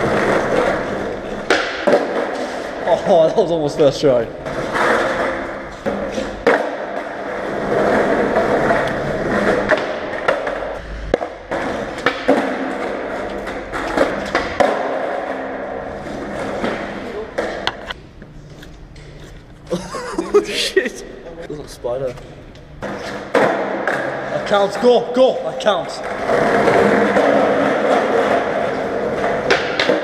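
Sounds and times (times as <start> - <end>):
skateboard wheels rolling on tarmac: 0.0 - 2.8, 4.4 - 17.4, 26.0 - 30.0
skateboard clacking on ground: 26.0 - 30.0.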